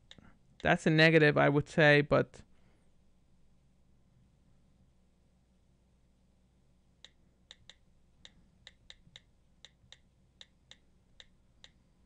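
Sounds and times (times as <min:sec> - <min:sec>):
on-screen keyboard clicks: 0:07.0 - 0:11.8.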